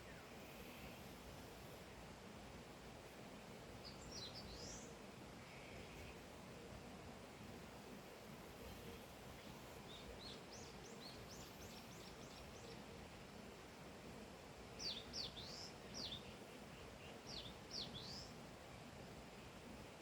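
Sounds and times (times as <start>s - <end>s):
faint steady hiss: 0.0s - 20.0s
small bird chirping: 14.8s - 18.3s.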